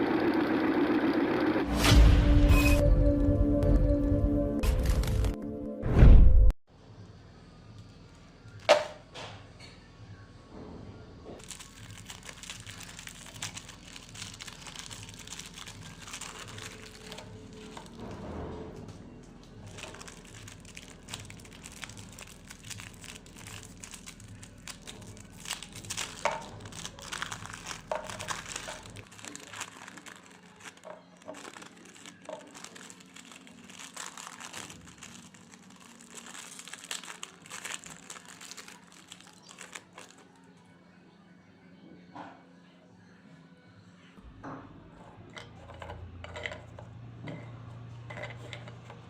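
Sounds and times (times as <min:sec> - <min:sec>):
plastic wrappers crinkling: 0:11.4 - 0:18.1, 0:19.4 - 0:40.5.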